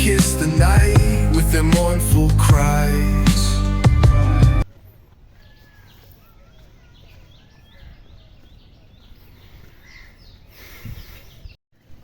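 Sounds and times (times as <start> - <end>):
small birds chirping: 5.3 - 11.6.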